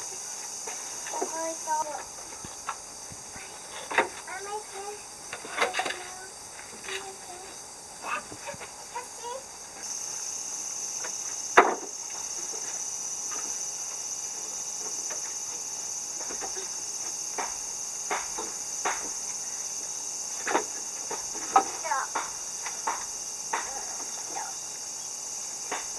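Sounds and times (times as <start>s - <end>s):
insects singing: 0.0s - 25.9s
sharp knocks: 17.4s - 19.2s.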